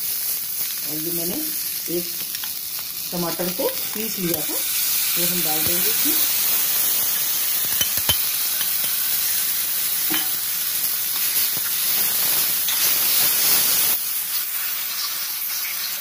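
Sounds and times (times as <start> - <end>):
puree sizzling in a pan: 0.0 - 16.0
spoon clicking against pan: 7.6 - 9.0.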